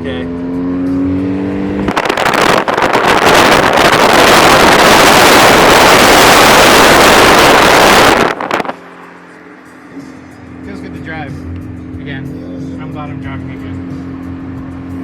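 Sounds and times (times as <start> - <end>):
wind buffeting microphone: 1.7 - 8.7.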